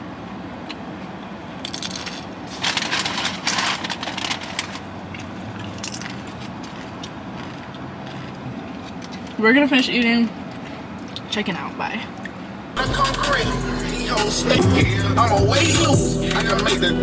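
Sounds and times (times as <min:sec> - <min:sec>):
tortilla chip crunching: 0:01.6 - 0:09.4.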